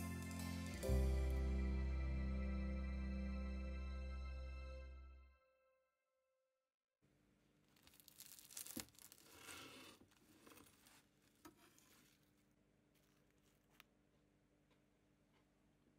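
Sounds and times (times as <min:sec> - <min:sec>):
pastry layers crackling: 0:07.6 - 0:13.8
knife cutting crisp pastry: 0:07.8 - 0:12.3.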